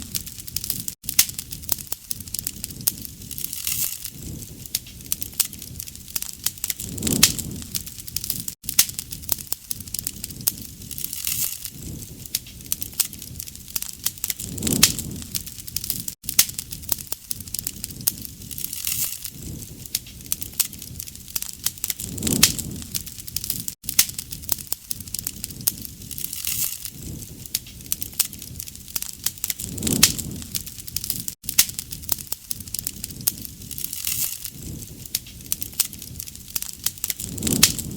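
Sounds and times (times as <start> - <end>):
campfire crackling: 0.0 - 37.9
low rush of flame: 0.0 - 37.9.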